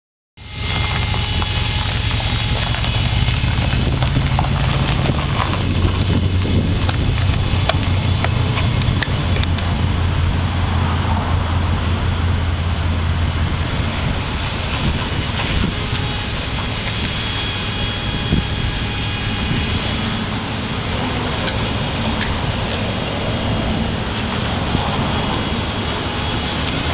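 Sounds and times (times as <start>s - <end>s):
car engine humming: 0.4s - 26.9s.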